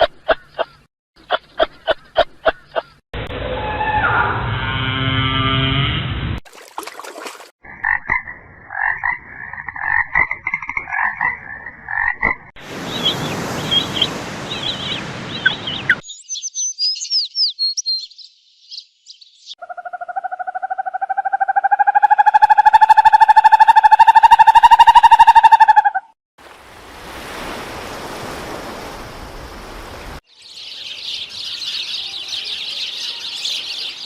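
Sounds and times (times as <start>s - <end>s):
frogs croaking: 7.7s - 13.1s, 19.6s - 25.7s.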